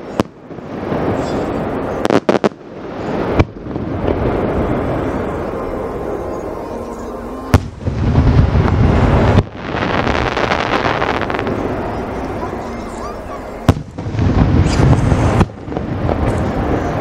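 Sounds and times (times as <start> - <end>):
rapid firework crackle: 0.0 - 5.5, 7.5 - 11.8, 13.7 - 17.0
firework bangs: 0.0 - 6.2, 7.5 - 17.0
low rumble: 2.7 - 17.0.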